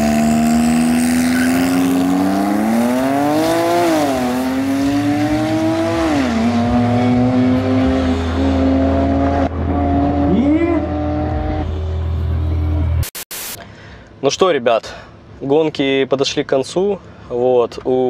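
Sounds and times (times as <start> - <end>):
car engine revving: 0.0 - 13.1.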